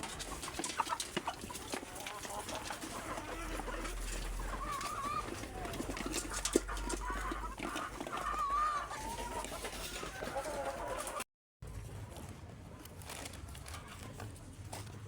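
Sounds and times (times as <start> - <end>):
drawn-out wavering calls: 0.0 - 11.2
chickens clucking: 0.0 - 11.3.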